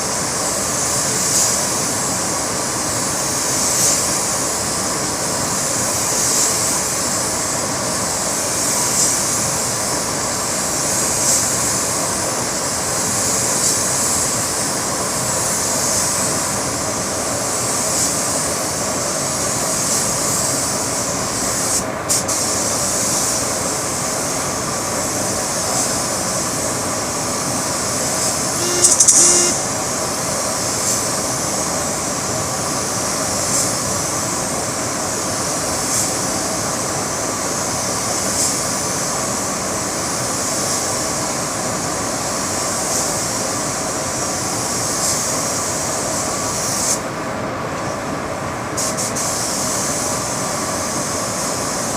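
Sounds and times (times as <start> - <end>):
paint spray gun hissing: 0.0 - 47.2, 48.7 - 51.9.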